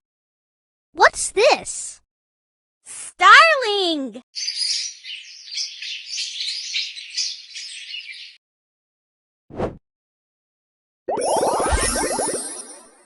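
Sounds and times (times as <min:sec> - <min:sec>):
starling chirps and whistles: 0:04.4 - 0:08.4.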